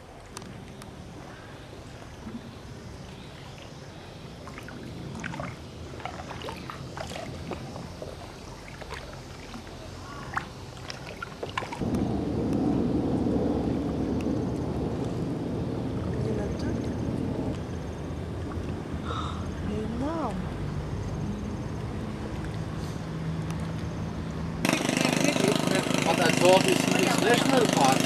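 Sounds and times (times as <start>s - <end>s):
water splashing around canoe: 0.0s - 11.9s
low steady rumble: 11.8s - 24.8s.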